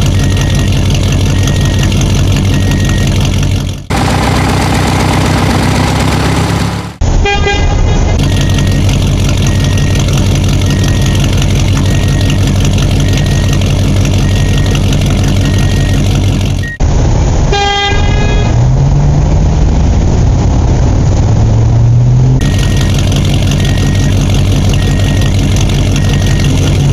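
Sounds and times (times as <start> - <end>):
reversing alarm beeping: 0.0 - 3.2, 8.2 - 16.8, 22.4 - 26.9
heavy vehicle engine running: 0.0 - 26.9.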